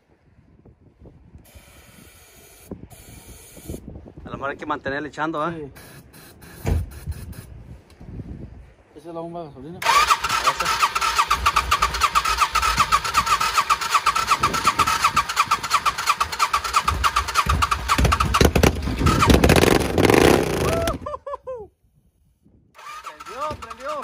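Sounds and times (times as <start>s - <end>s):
starting fluid spraying: 9.8s - 20.9s
motorcycle engine cranking: 9.8s - 21.0s, 22.8s - 24.0s.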